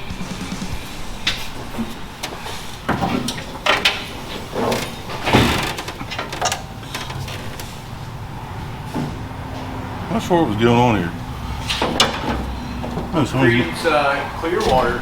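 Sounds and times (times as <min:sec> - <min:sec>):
clunks and rattles of tools: 0:01.2 - 0:08.1, 0:11.5 - 0:15.0.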